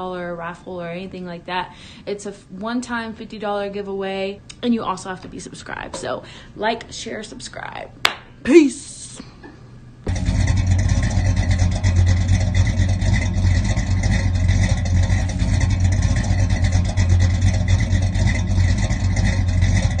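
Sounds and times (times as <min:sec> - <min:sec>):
car engine running: 0:10.0 - 0:20.0.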